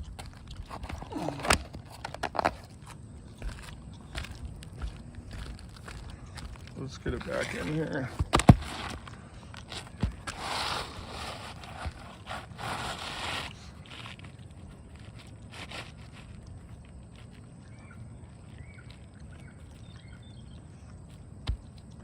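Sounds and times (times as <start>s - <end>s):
shingle scraping and rustling: 0.0s - 19.6s
outdoor background: 0.0s - 22.0s
faint bird chirps: 17.4s - 21.2s.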